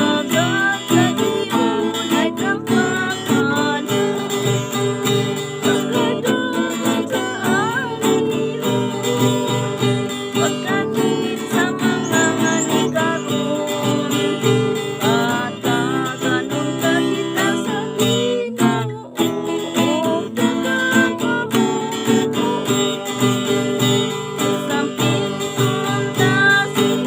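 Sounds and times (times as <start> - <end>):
strummed acoustic guitar: 0.0 - 27.0
wavering melody line: 6.9 - 14.7.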